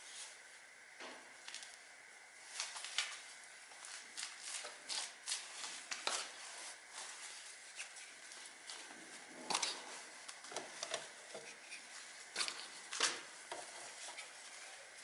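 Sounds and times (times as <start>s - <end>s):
hand tools clicking and scraping: 7.7s - 15.0s.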